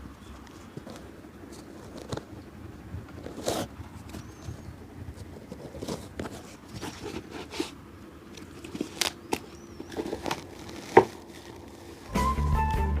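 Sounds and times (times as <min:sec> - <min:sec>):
shoe brushing clicks and rustles: 0:00.2 - 0:12.1
music: 0:12.1 - 0:13.0.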